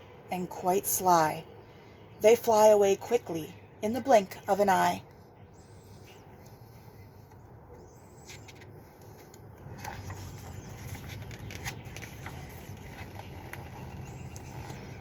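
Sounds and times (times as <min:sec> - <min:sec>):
faint outdoor background noise: 0:00.0 - 0:15.0
rustles: 0:05.1 - 0:15.0.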